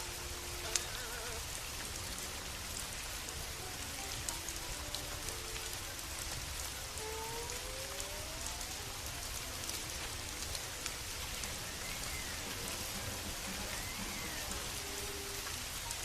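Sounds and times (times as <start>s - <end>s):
steady rain falling: 0.0s - 16.0s
faint rising tone: 6.9s - 16.0s.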